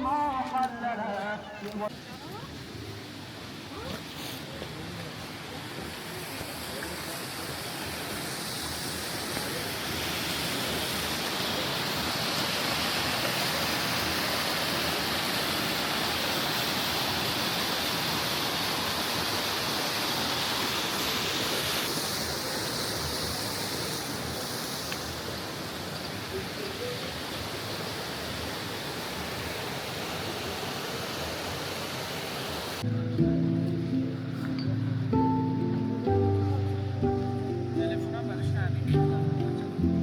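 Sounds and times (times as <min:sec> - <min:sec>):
stream rushing over rocks: 0:01.8 - 0:32.9.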